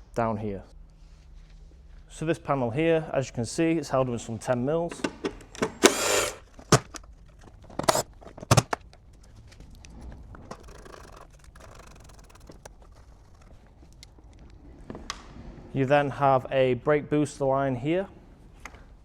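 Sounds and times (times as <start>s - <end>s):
hand tool rasping: 5.8s - 6.9s, 7.8s - 8.8s, 10.5s - 13.0s
faint scraping and rustling: 7.3s - 15.8s.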